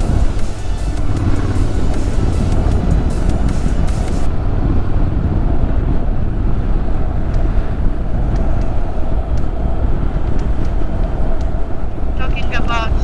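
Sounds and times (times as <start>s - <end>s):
motorcycle engine rumble: 0.0s - 13.0s
wind rush on microphone: 0.0s - 13.0s.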